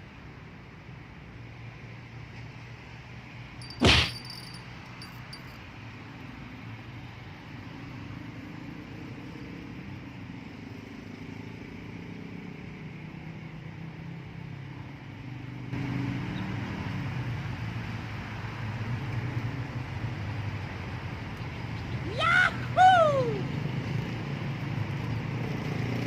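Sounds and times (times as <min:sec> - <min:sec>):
sharp knock: 0:03.7 - 0:04.5.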